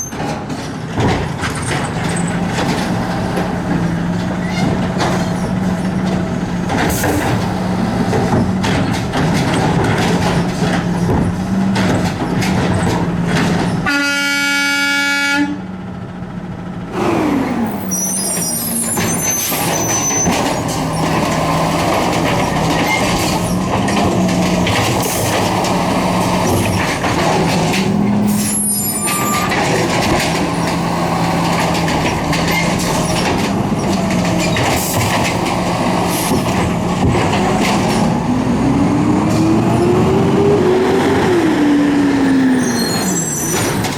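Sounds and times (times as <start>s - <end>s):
garbage truck engine hum: 0.0s - 13.9s, 15.6s - 43.9s
horn blast: 13.9s - 15.6s
high-pitched squeals: 17.7s - 21.1s, 28.3s - 29.8s, 41.0s - 43.9s.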